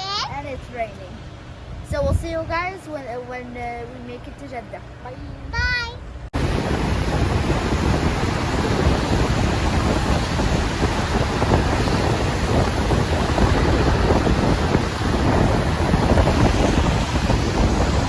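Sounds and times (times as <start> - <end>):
wind buffeting microphone: 0.0 - 4.4, 5.1 - 18.0
heavy rain pouring: 6.4 - 18.0.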